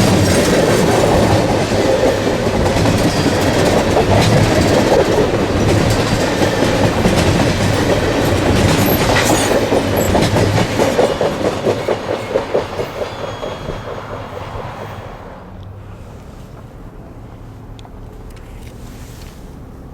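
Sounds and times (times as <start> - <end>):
wheels clicking over rail joints: 0.0 - 14.8
freight train rolling past: 0.0 - 17.4.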